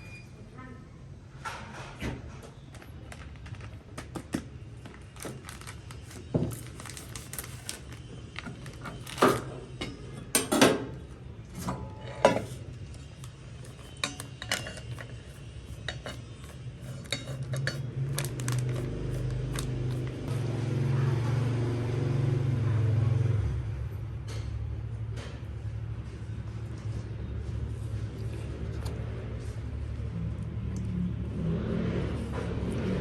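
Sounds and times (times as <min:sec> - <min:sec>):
dishes and utensils clinking: 0:11.8 - 0:12.6, 0:13.6 - 0:18.0.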